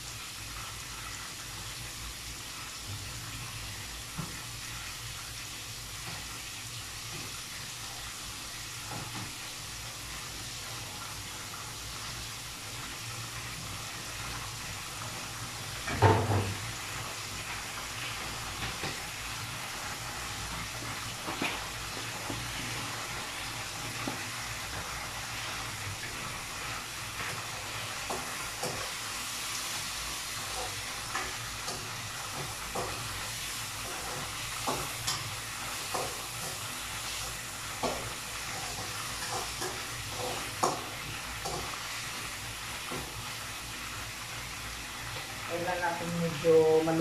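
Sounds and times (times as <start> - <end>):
chicken sizzling in a wok: 0.0 - 47.0
utensil scraping and knocking wok: 30.1 - 43.2.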